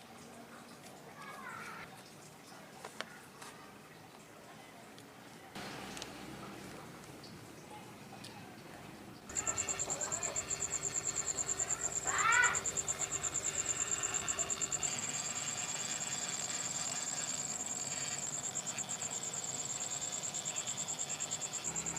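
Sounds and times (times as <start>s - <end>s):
high-pitched insect trill: 9.3s - 21.9s.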